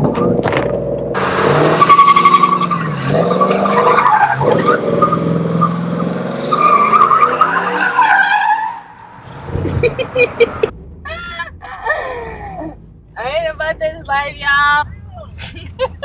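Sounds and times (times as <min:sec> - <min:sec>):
truck engine revving: 0:00.0 - 0:11.0
tyres squealing on pavement: 0:01.2 - 0:10.7.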